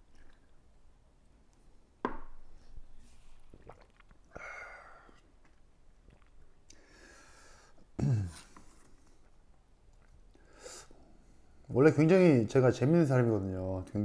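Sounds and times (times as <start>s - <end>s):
person chewing: 3.5s - 4.4s.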